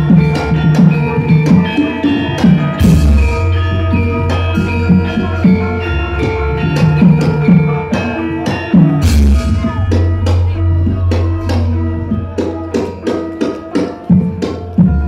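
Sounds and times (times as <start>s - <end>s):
drum strokes: 0.0s - 15.0s
gongs: 0.0s - 15.0s
metal-keyed instruments ringing: 0.0s - 15.0s.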